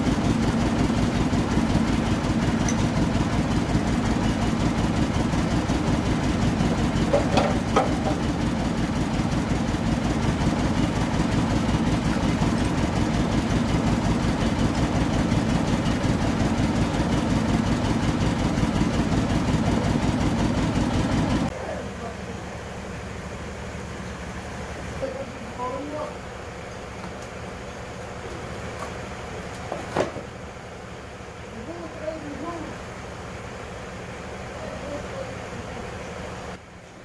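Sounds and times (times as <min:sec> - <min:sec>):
engine idling: 0:00.0 - 0:37.0
light engine knocks: 0:06.7 - 0:08.4.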